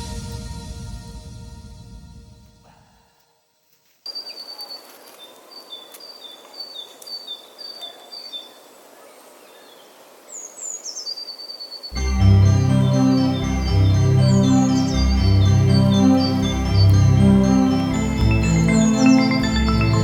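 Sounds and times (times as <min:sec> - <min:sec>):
background music: 0:00.0 - 0:02.8, 0:12.0 - 0:20.0
falling bird chirps: 0:04.1 - 0:12.0.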